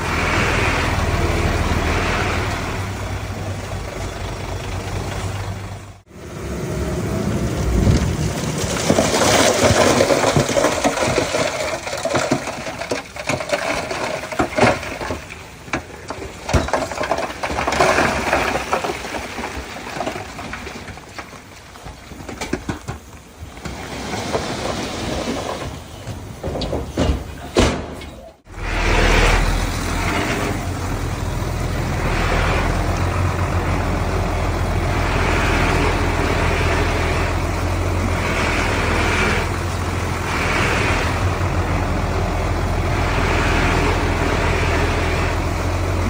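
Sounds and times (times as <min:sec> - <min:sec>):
heavy machine running: 0:00.0 - 0:21.2, 0:28.4 - 0:46.0
rushing tumbling earth: 0:00.0 - 0:46.0
sharp clanks and knocks: 0:07.8 - 0:28.4.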